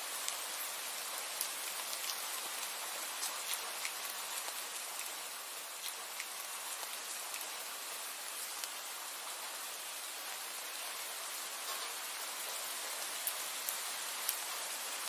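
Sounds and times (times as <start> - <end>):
rain hissing: 0.0 - 15.0.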